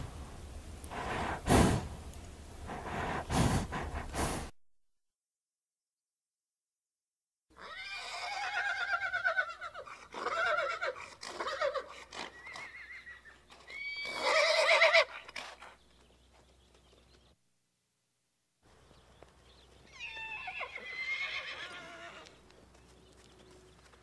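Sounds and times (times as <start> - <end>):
horse whinnying: 7.6 - 15.6, 19.9 - 22.3.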